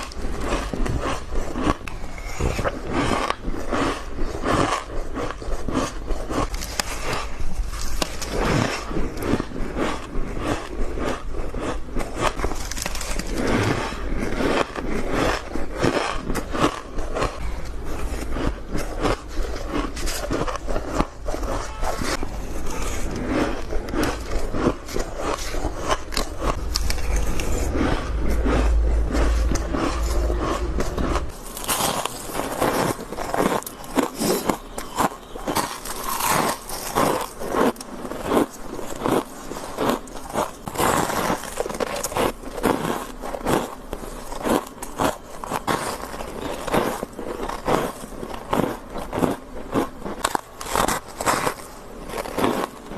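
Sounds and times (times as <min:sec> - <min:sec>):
crunching ice bites: 0:00.0 - 0:17.4, 0:31.1 - 0:52.9
low hum: 0:16.9 - 0:35.4.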